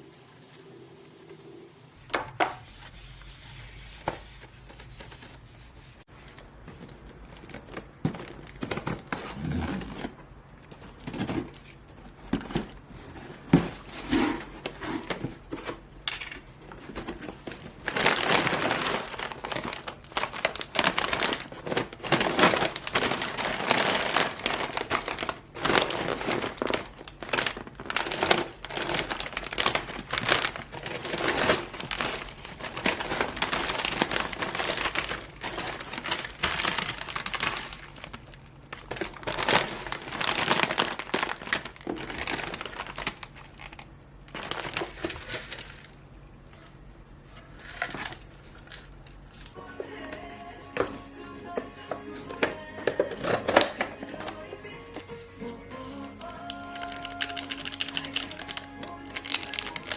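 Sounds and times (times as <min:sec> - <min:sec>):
wrapping crinkling: 0:16.6 - 0:49.6, 0:52.2 - 0:59.9
wrapping tearing: 0:17.4 - 0:46.0, 0:55.5 - 0:59.9.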